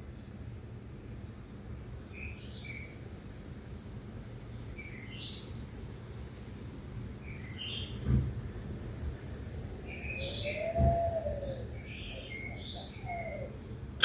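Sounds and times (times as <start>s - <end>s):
bird chirping: 9.9s - 13.5s.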